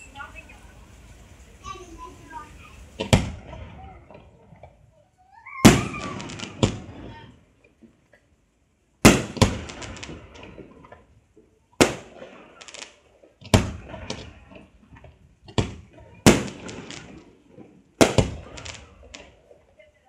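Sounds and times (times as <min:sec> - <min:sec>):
firework crackles: 0:00.0 - 0:08.0, 0:08.9 - 0:20.0
firework shells bursting: 0:02.8 - 0:04.8, 0:05.6 - 0:08.0, 0:09.0 - 0:19.8.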